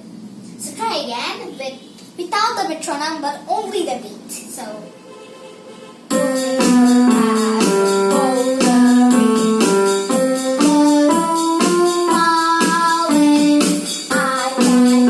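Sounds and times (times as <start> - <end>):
electronic keyboard melody: 6.1 - 15.0
keyboard percussion beat: 6.1 - 15.0.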